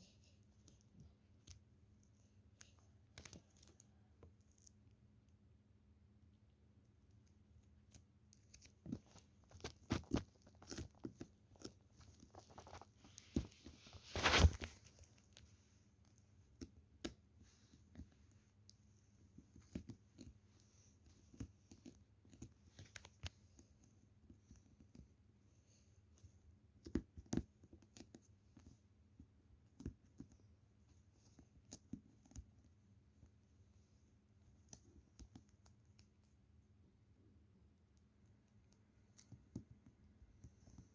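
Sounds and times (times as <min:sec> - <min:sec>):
faint small clicks and taps: 0:00.0 - 0:05.4, 0:06.8 - 0:36.7, 0:37.7 - 0:40.9.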